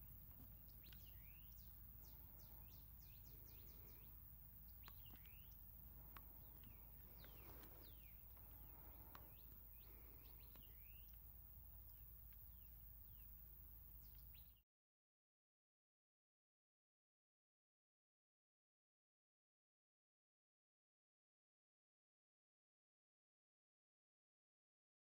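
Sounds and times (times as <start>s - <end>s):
faint bird calls: 0.0s - 14.6s
steady low hum: 0.0s - 14.6s.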